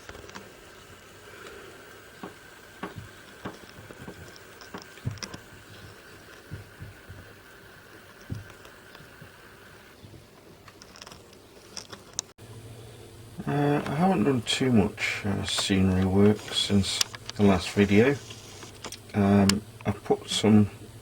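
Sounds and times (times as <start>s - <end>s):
faint steady whine: 0.0s - 21.0s
model train wheels clicking: 13.8s - 20.6s.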